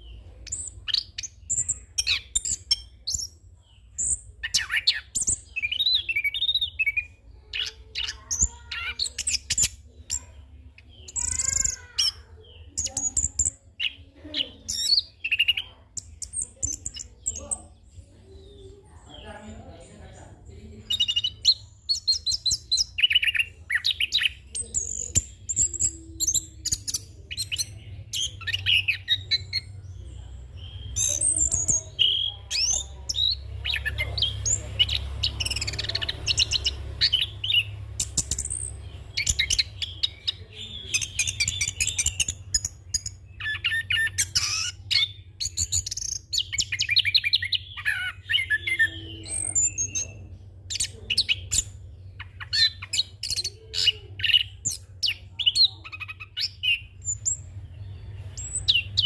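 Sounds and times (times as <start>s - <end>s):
thrush singing rapid trills: 20.7s - 59.0s.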